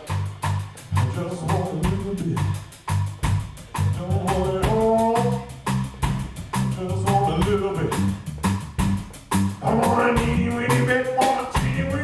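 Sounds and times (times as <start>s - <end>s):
bass line: 0.0s - 12.0s
blues band playing live: 0.0s - 12.0s
drums keeping a steady beat: 0.0s - 12.0s
person singing: 1.0s - 2.4s, 4.0s - 5.5s, 9.6s - 12.0s.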